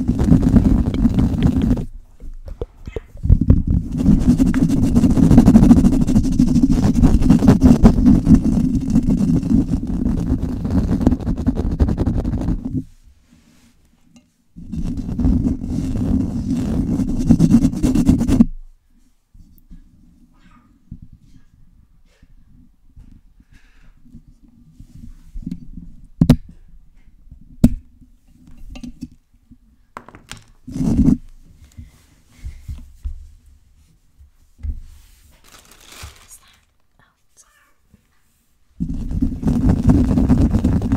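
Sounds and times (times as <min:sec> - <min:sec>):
fingers scratching on microphone: 0:00.0 - 0:12.9, 0:14.6 - 0:18.6, 0:30.6 - 0:31.3, 0:38.8 - 0:40.9.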